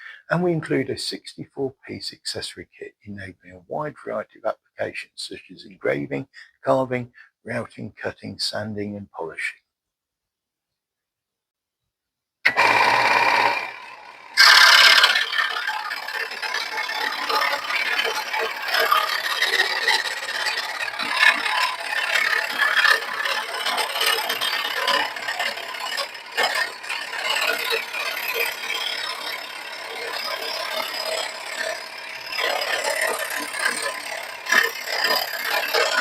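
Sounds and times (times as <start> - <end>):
scroll saw rattling and rasping: 12.5 - 36.0.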